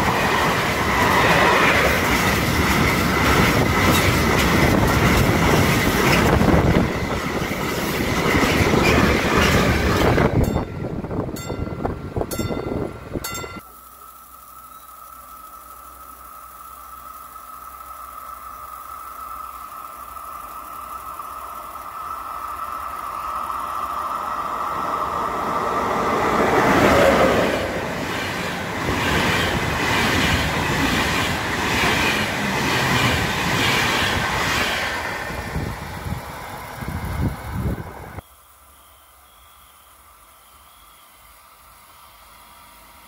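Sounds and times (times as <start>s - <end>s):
wheels clattering over rail joints: 0.0s - 10.7s
train passing rush: 0.0s - 13.6s, 17.0s - 38.2s
high ringing tone: 10.3s - 24.2s.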